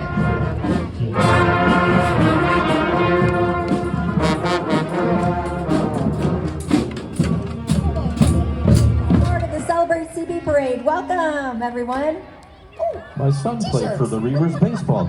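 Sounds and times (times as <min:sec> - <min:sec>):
drum strokes: 0:00.0 - 0:09.7
brass band playing chords: 0:00.0 - 0:10.2.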